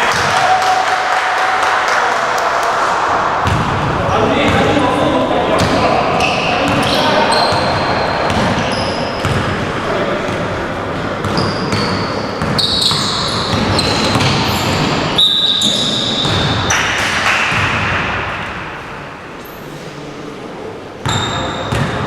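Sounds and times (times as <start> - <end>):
players' voices: 0.0 - 15.1
sneakers squeaking on court: 5.6 - 16.8, 21.0 - 22.0
basketball bouncing: 7.5 - 15.0, 15.6 - 18.2, 21.6 - 22.0.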